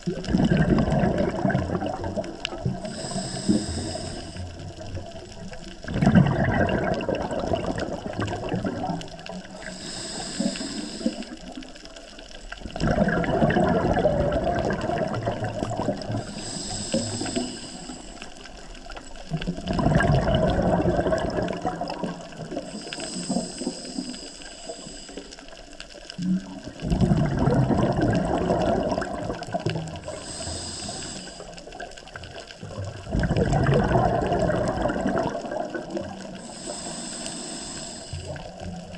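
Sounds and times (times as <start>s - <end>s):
diver exhaling bubbles: 0.0s - 11.4s, 12.6s - 18.0s, 19.2s - 24.9s, 26.2s - 31.4s, 32.6s - 38.9s
regulator inhale hiss: 2.7s - 4.9s, 9.2s - 11.9s, 16.0s - 19.3s, 21.9s - 26.0s, 30.0s - 32.2s, 36.3s - 38.8s.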